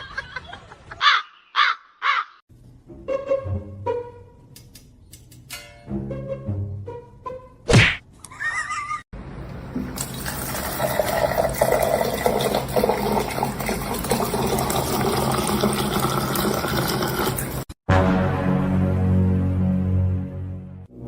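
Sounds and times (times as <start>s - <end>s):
running water from a tap: 9.8s - 17.8s.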